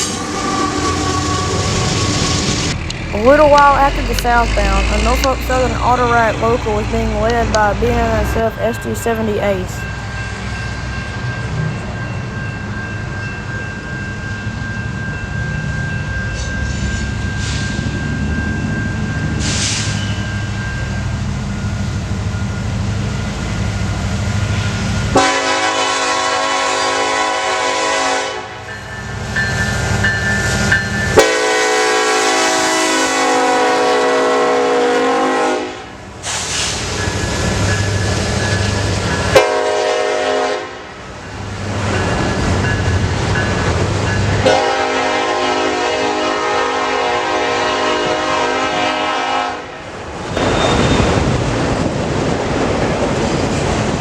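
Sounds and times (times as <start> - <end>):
train rumbling: 0.0 - 54.0
locomotive horn blasts: 25.2 - 28.6, 31.2 - 36.0, 39.4 - 40.9, 44.4 - 49.8.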